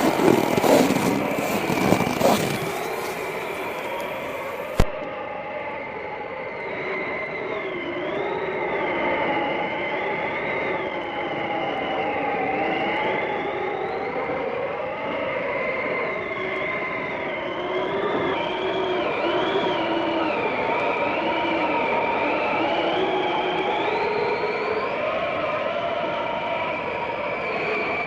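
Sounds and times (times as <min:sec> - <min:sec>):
wind howling and whistling: 0:00.0 - 0:04.9.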